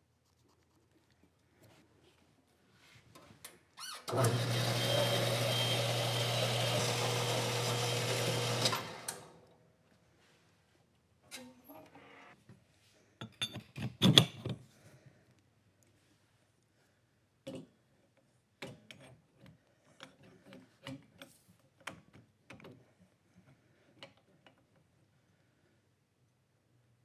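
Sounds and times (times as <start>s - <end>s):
power tool humming and hissing: 4.1s - 9.4s.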